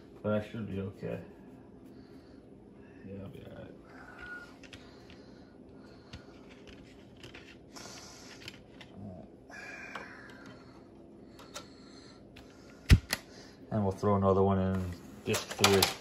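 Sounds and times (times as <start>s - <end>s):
discs clicking into a tray: 15.3s - 16.0s.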